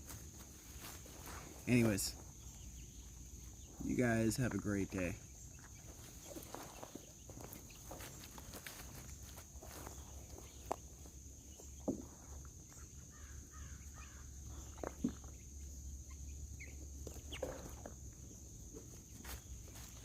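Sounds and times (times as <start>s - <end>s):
footsteps: 0.0s - 2.6s, 3.4s - 11.2s
faint bird chirps: 0.6s - 20.0s.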